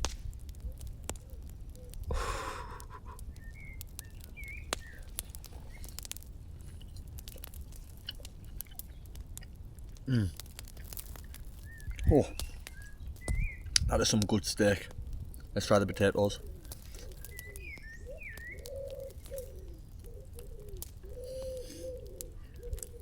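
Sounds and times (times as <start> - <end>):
eating clicks and crackles: 0.0 - 23.0
rustle: 0.0 - 23.0
faint bird chirps: 2.7 - 6.1, 11.6 - 13.8, 15.6 - 23.0
breathy vocal sound: 10.1 - 10.4.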